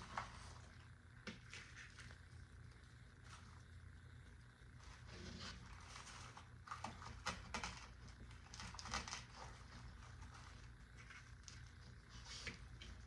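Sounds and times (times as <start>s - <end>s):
steady low hum: 0.0s - 13.0s
light clicks and crinkles: 4.8s - 13.0s.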